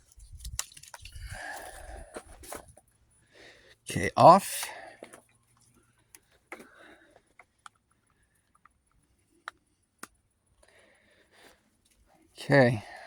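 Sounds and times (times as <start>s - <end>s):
faint handling clicks and taps: 4.9s - 10.7s.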